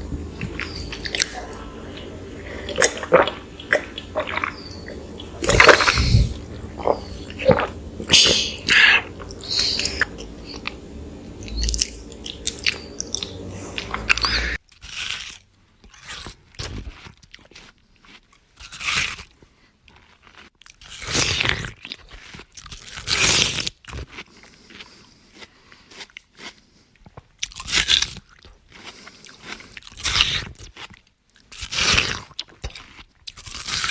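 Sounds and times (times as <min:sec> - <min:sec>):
low steady hum: 0:00.0 - 0:14.6
biting and chewing soft bread: 0:00.0 - 0:33.9.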